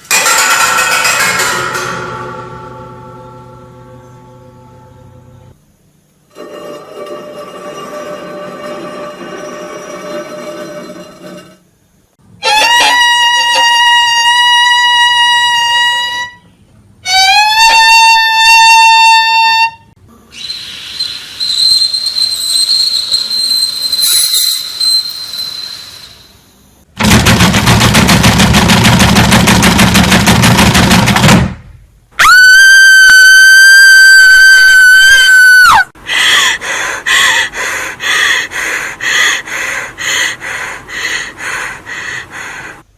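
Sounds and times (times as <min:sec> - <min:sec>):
high pitched cries: 0:20.3 - 0:26.5, 0:32.2 - 0:35.9
hissing with thin high tone: 0:20.3 - 0:26.8.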